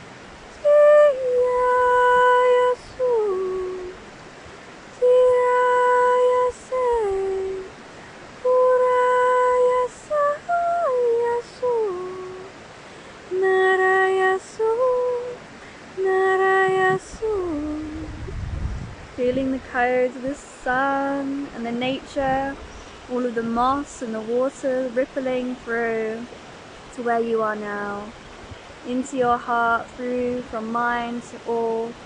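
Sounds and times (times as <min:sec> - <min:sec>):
woman singing wordless tones: 0:00.0 - 0:04.1, 0:04.9 - 0:18.5, 0:19.1 - 0:28.2, 0:28.8 - 0:32.0.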